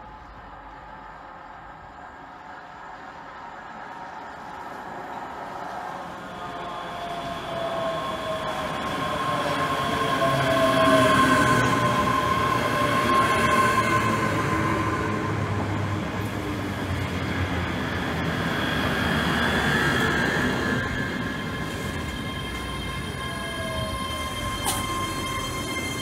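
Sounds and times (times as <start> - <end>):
electric whine of train: 0.0 - 26.0
train wheels rumbling on rail: 0.0 - 26.0.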